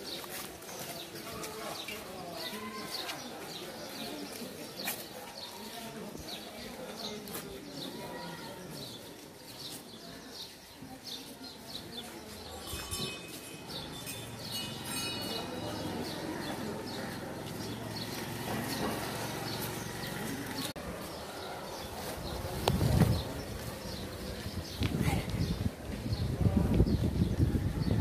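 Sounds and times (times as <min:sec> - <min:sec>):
small birds chirping: 0:00.0 - 0:13.1.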